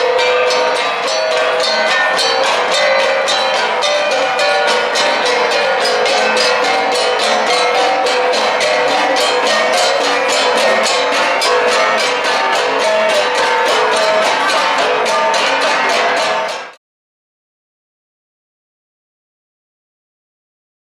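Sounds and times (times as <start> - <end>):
gong ensemble playing: 0.0 - 16.8.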